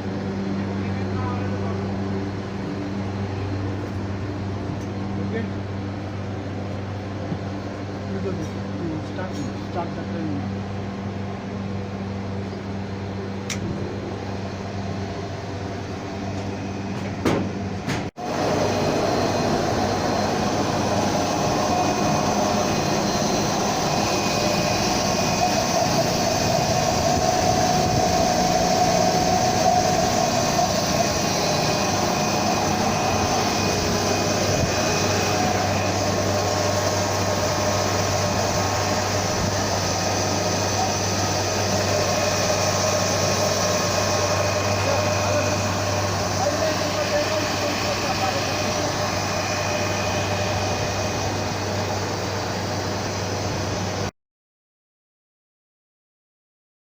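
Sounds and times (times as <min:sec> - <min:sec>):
steady whine: 0:00.0 - 0:54.1
electric motor hum: 0:18.2 - 0:54.1.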